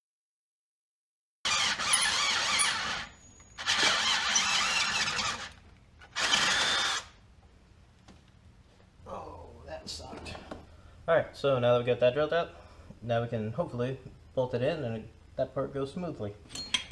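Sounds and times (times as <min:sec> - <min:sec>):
power drill whining through metal: 0:01.4 - 0:07.2.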